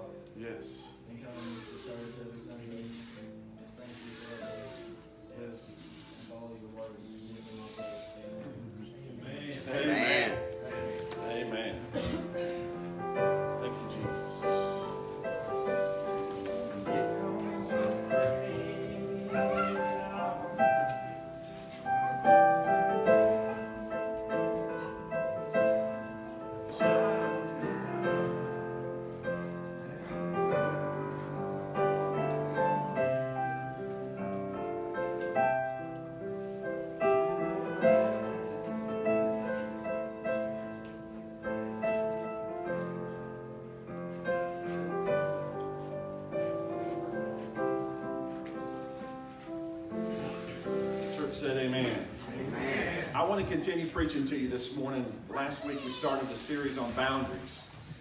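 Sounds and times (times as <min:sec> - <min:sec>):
piano playing: 0:00.0 - 0:58.0.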